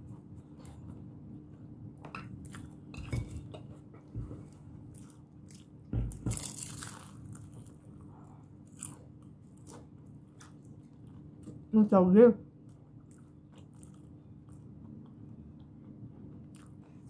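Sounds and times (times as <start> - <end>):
steady low hum: 0.0 - 17.0
crunchy chewing: 4.8 - 11.7, 12.7 - 17.0.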